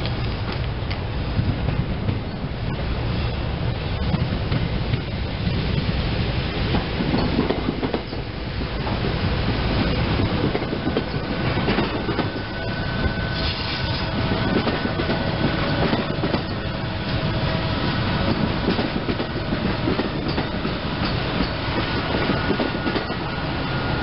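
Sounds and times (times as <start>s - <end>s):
electric train rumbling past: 0.0s - 24.0s
wheels clicking over rail joints: 6.7s - 9.1s, 9.8s - 12.5s, 18.2s - 23.3s.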